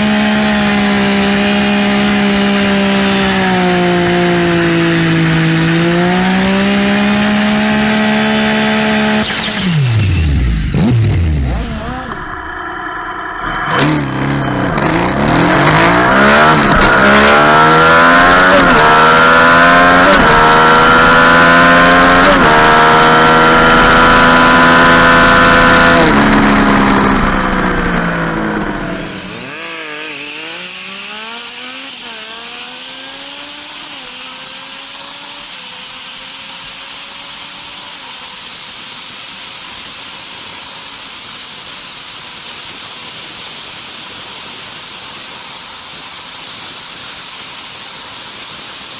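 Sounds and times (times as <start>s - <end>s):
motorcycle engine accelerating: 0.0s - 38.2s.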